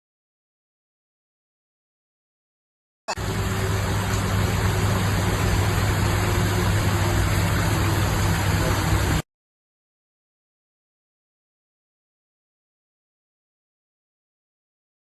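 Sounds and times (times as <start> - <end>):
broad rushing noise: 3.2 - 9.2
vehicle engine running: 3.2 - 9.2.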